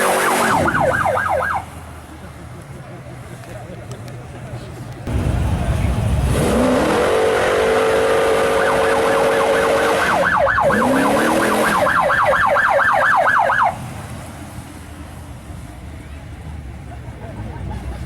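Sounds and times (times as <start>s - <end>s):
police siren yelping: 0.0s - 1.7s, 8.2s - 13.8s.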